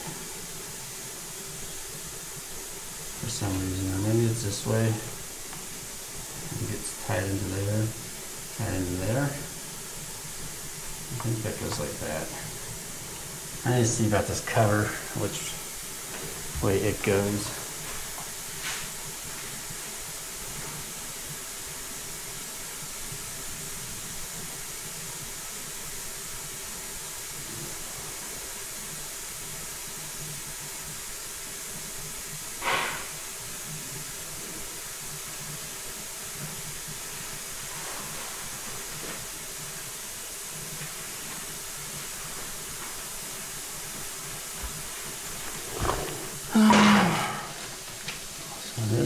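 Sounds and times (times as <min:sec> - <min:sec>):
steady hiss: 0:00.0 - 0:49.0
faint handling noises: 0:40.6 - 0:48.8.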